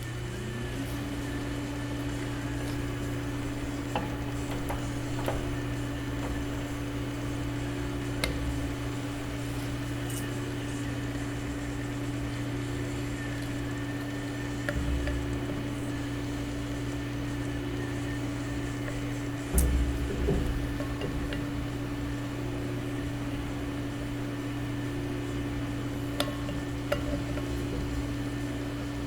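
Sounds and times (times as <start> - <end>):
welding machine humming: 0.0 - 29.0.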